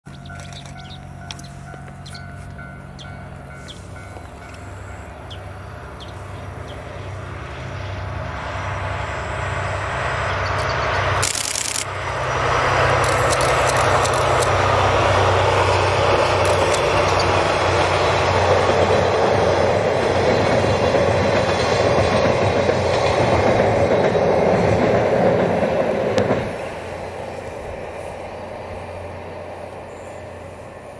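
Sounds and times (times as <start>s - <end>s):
diesel locomotive engine running: 0.0s - 30.9s
wheels clicking over rail joints: 10.4s - 27.8s.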